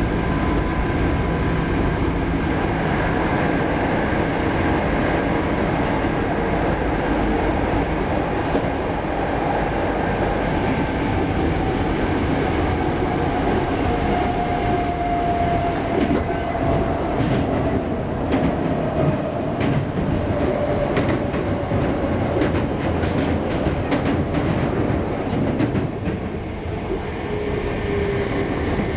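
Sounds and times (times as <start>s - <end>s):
train wheels rumbling on track: 0.0s - 28.9s.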